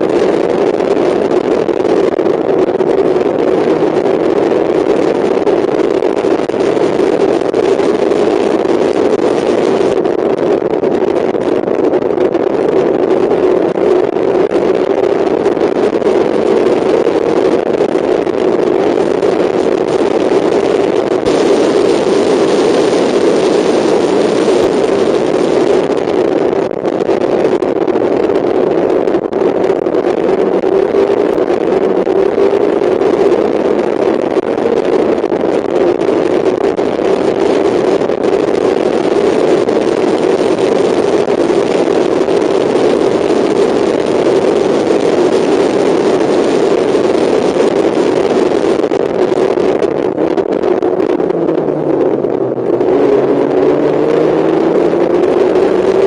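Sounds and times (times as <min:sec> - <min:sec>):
race car engine running hard: 0:00.0 - 0:27.2, 0:42.3 - 0:56.0
wind and road rush: 0:00.0 - 0:56.0.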